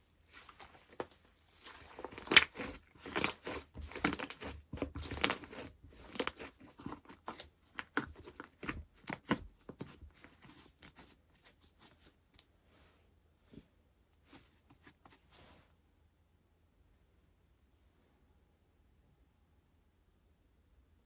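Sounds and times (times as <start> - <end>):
slime crackling and popping: 0.5 - 10.0.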